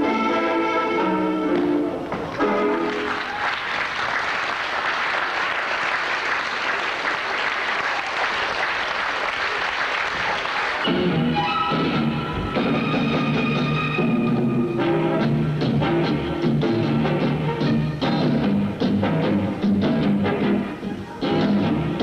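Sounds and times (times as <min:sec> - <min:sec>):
music playing: 0:00.0 - 0:03.6, 0:10.6 - 0:22.0
audience applauding: 0:02.1 - 0:11.1.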